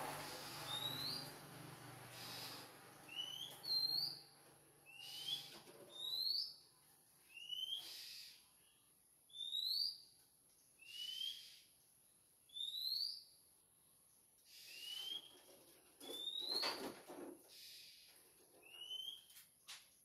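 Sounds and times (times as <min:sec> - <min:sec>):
bird whistling calls: 0:00.5 - 0:01.4, 0:02.2 - 0:06.6, 0:07.3 - 0:08.4, 0:09.3 - 0:10.0, 0:10.8 - 0:11.6, 0:12.5 - 0:13.3, 0:14.5 - 0:15.3.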